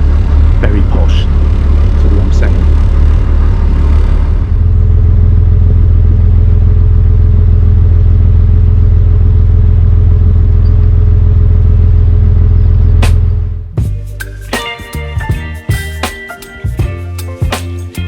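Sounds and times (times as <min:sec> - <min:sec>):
boat engine droning: 0:00.0 - 0:13.7.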